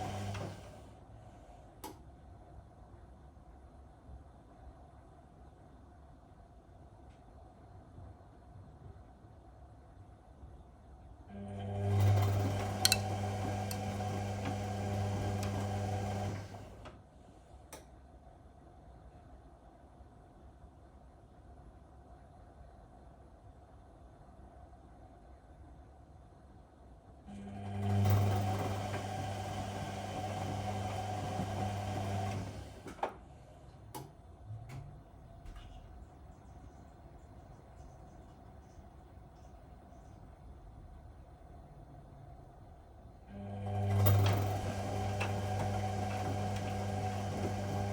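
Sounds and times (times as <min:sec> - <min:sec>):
washing machine motor humming: 0:00.0 - 0:00.9, 0:11.3 - 0:17.0, 0:27.3 - 0:33.2, 0:43.3 - 0:47.9.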